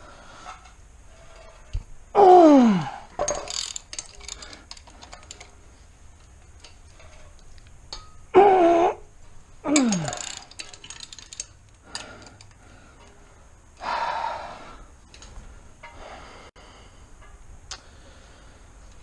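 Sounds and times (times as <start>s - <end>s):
man groaning with effort: 2.2s - 3.1s, 8.4s - 9.0s, 9.7s - 10.2s
man breathing out: 11.8s - 14.9s.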